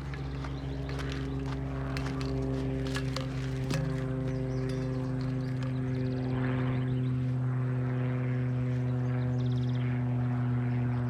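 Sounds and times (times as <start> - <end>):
steady droning hum: 0.0 - 11.0.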